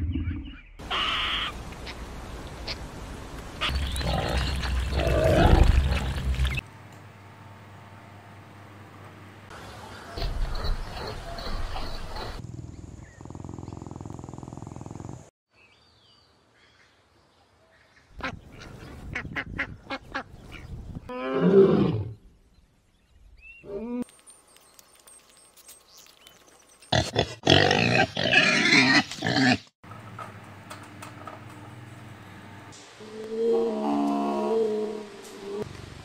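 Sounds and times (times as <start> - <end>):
lion roaring: 4.0 - 6.4.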